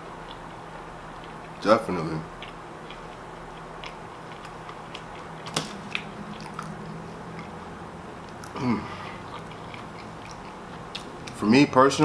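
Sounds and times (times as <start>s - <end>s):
chewing and crunching sandwich: 0.0s - 12.0s
person humming mm: 8.5s - 9.3s.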